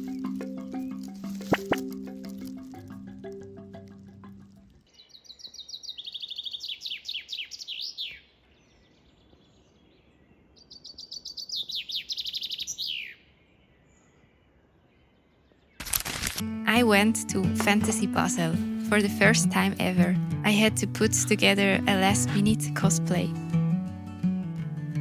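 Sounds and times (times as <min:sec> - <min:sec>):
background music: 0:00.0 - 0:04.8, 0:16.4 - 0:25.0
songbird singing: 0:00.0 - 0:15.8.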